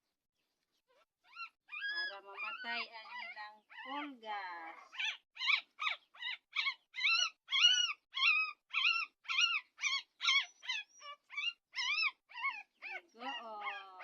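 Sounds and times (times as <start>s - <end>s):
puppy yelping: 0.9s - 14.0s.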